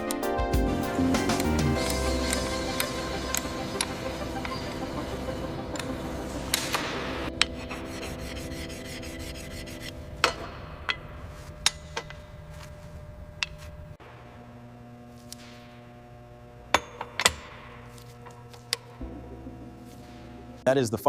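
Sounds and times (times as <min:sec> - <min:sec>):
steady low hum: 0:00.6 - 0:21.0
hand tools rubbing and scraping: 0:01.0 - 0:13.8.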